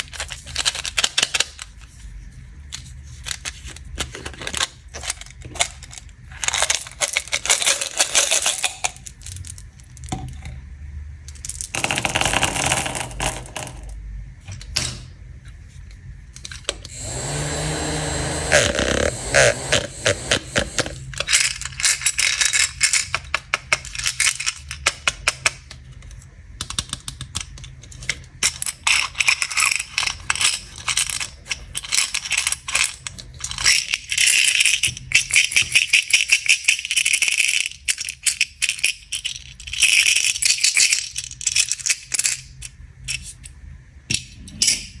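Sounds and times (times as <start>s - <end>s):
candies rattling in plastic packaging: 0.0s - 2.0s, 2.6s - 10.2s, 18.5s - 25.3s, 26.8s - 42.7s.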